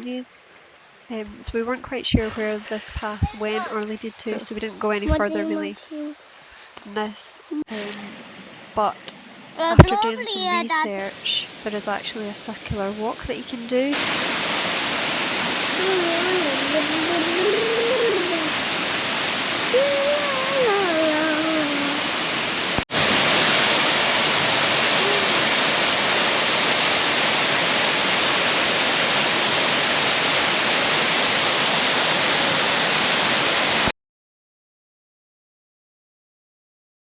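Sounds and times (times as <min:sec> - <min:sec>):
waterfall roaring: 0:01.3 - 0:06.6, 0:07.5 - 0:33.9
wavering voice-like call: 0:03.1 - 0:06.2, 0:15.7 - 0:18.7, 0:19.6 - 0:22.1, 0:24.8 - 0:25.6.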